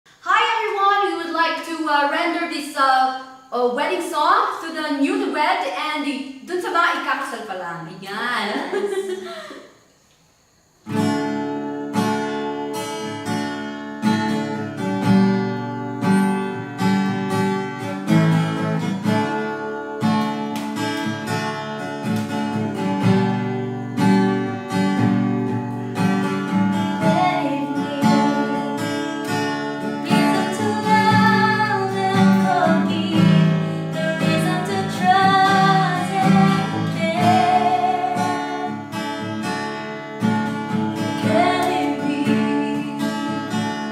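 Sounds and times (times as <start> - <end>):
acoustic guitar strumming: 10.8 - 43.9
person singing: 26.9 - 29.0, 30.0 - 38.9, 41.0 - 43.9.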